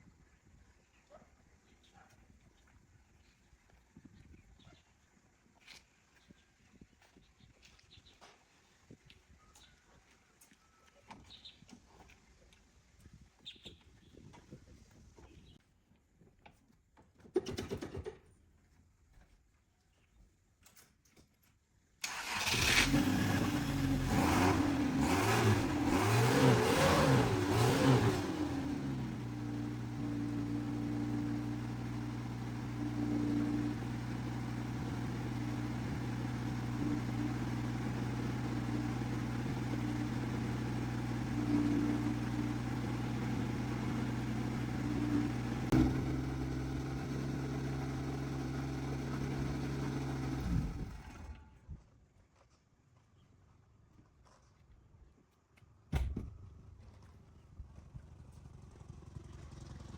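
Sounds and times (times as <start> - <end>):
engine revving and idling: 22.1 - 51.4.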